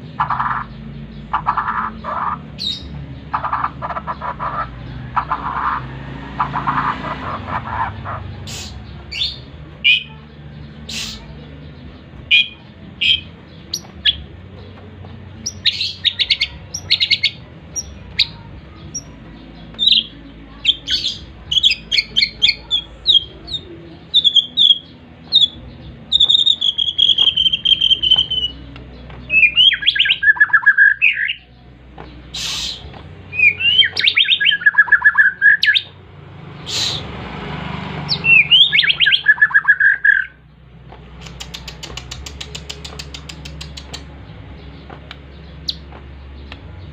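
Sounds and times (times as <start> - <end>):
songbird singing: 0.0 - 46.9
sharp clicks: 40.9 - 44.2.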